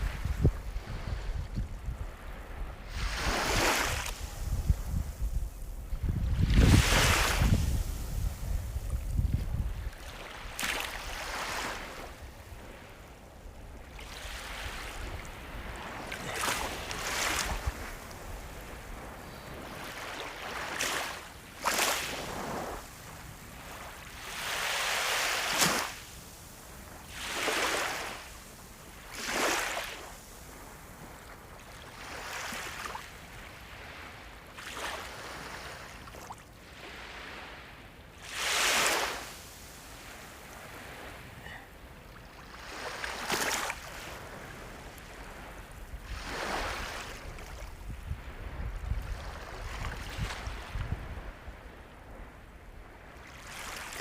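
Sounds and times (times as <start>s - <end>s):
sea waves breaking: 0.0s - 30.7s, 31.7s - 51.6s.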